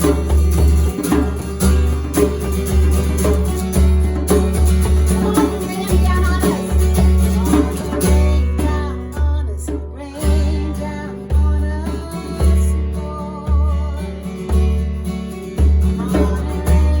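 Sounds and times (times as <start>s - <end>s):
acoustic guitar strumming: 0.0s - 17.0s
person singing: 5.1s - 14.5s, 16.0s - 17.0s.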